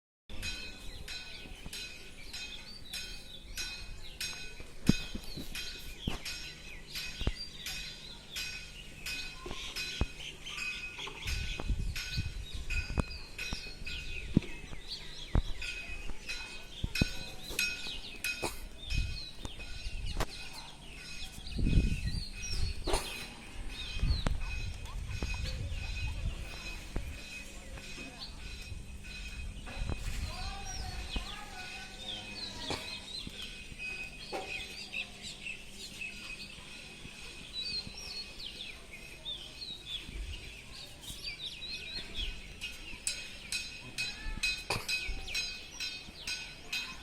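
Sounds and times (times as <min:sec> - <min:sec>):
low rumbles: 0:00.3 - 0:34.0
birds chirping and calling: 0:00.4 - 0:47.0.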